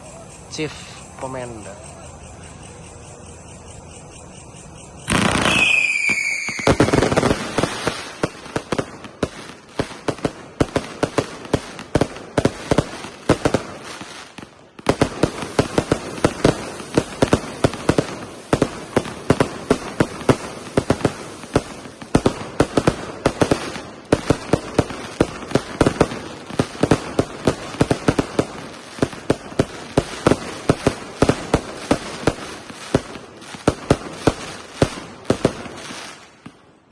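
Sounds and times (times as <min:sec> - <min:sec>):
firework whistle: 0:00.0 - 0:11.8
firework cake shots and bursts: 0:05.1 - 0:36.9.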